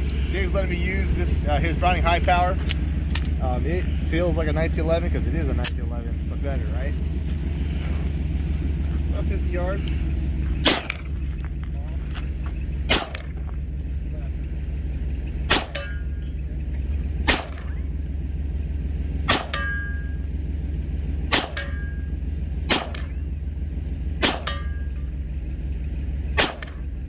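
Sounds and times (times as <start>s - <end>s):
pistol shots: 10.6s - 11.1s, 12.9s - 13.4s, 15.5s - 16.0s, 17.2s - 17.8s, 19.3s - 19.9s, 21.3s - 22.0s, 22.7s - 23.2s, 24.2s - 24.8s, 26.4s - 26.8s
steel target ringing: 15.4s - 18.0s, 19.2s - 20.4s, 21.3s - 23.2s, 24.2s - 25.3s.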